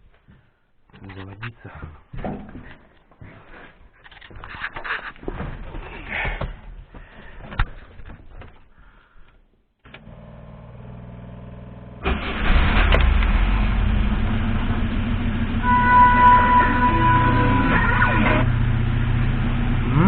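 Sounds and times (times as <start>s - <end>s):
car engine starting and running: 9.8s - 20.0s
steady high whine: 15.6s - 19.3s.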